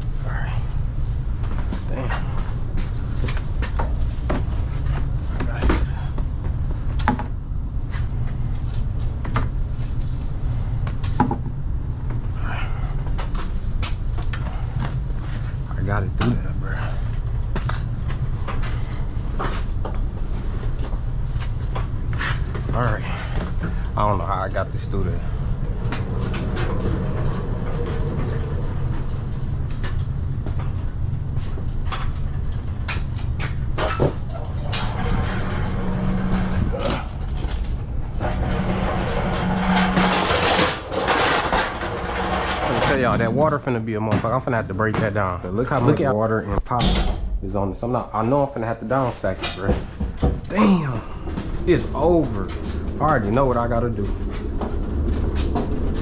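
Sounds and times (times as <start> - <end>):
cart rumbling: 0.0 - 56.0
cart knocks and clatters: 10.8 - 45.8, 49.0 - 56.0.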